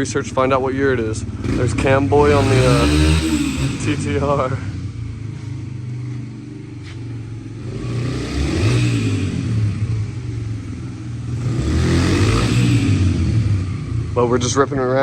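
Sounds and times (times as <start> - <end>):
dirt bike engine passing: 1.4 - 4.8.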